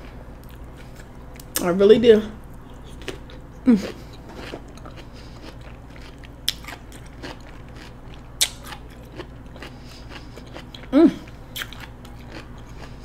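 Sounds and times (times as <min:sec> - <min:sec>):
chewing cucumber: 0:02.5 - 0:13.0
person humming: 0:03.6 - 0:04.0, 0:10.9 - 0:11.3.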